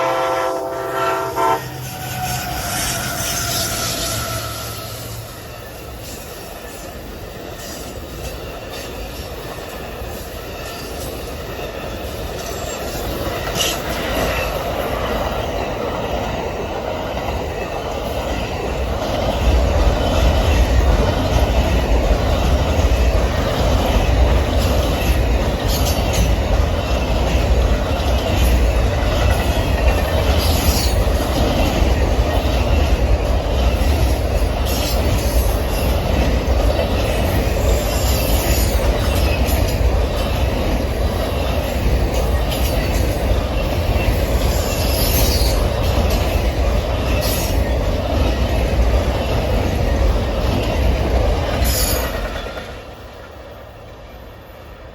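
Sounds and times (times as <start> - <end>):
train wheels rumbling on track: 0.0 - 54.9
high wheel squeal: 0.9 - 5.8
wheels clicking over rail joints: 1.8 - 54.1.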